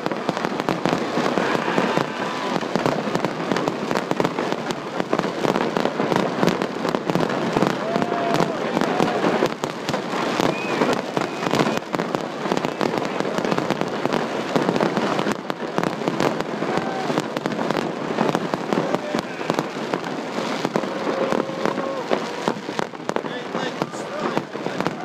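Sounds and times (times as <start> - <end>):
fireworks crackling and popping: 0.0 - 25.0.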